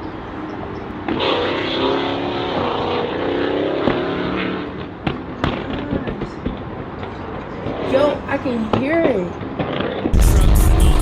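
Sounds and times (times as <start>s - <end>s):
car engine revving: 1.0s - 5.7s.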